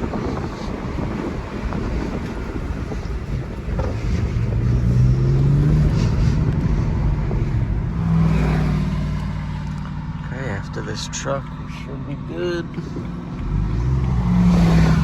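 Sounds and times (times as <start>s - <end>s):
wind noise: 0.0s - 10.2s
car engine accelerating: 0.0s - 15.0s.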